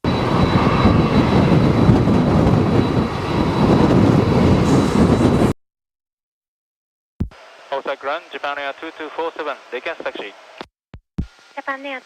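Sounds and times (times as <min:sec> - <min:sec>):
strong wind buffeting microphone: 0:00.0 - 0:05.6.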